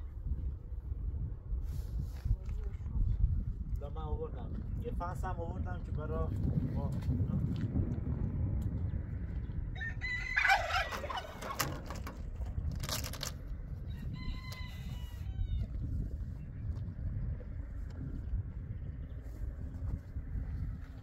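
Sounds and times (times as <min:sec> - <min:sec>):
steady low rumble: 0:00.0 - 0:21.0
rooster crowing: 0:09.7 - 0:11.3, 0:13.9 - 0:15.7.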